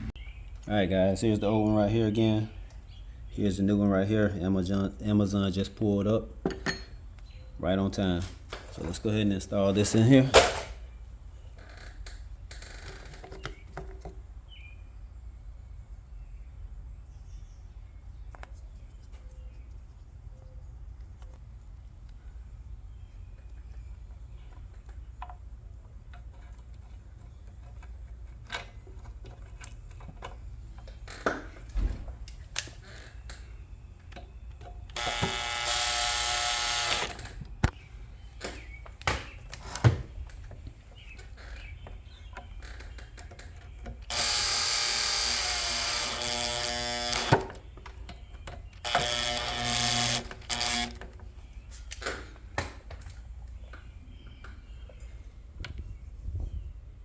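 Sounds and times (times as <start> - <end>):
power drill whining: 34.9 - 37.4, 44.0 - 47.7, 48.8 - 51.1.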